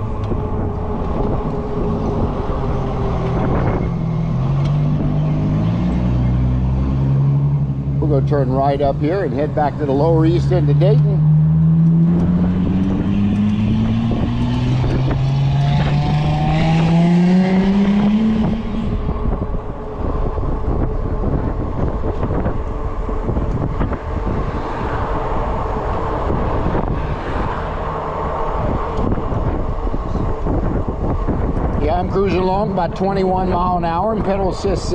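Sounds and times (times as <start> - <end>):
wind buffeting: 0.0 - 34.9
electric motor tone rising: 10.3 - 31.6.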